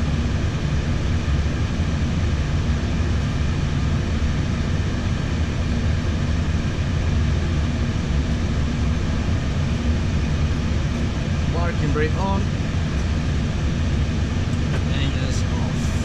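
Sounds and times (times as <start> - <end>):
cockpit hum and air rush: 0.0 - 16.0
jet engines idling: 0.0 - 16.0.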